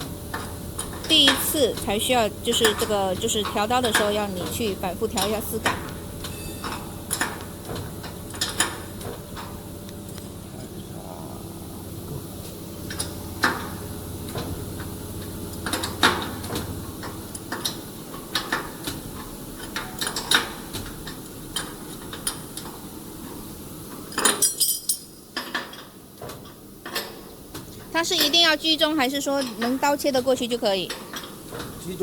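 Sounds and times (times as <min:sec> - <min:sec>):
low steady hum: 0:00.0 - 0:18.5
metal tools clinking on steel: 0:24.2 - 0:25.2.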